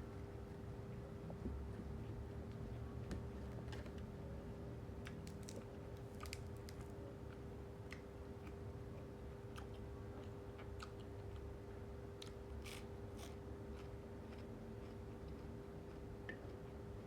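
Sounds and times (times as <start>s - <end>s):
faint steady hum: 0.0s - 17.0s
person chewing food: 12.2s - 16.7s.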